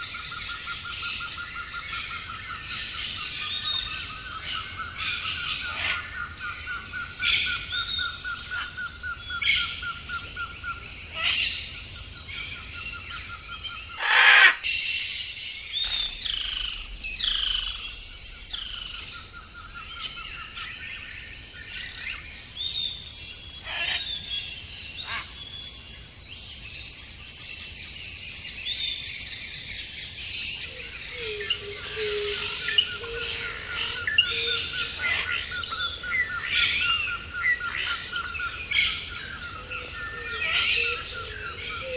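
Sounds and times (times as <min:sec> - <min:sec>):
birds chirping and calling: 0:00.0 - 0:41.9
loud bird call: 0:13.9 - 0:14.7.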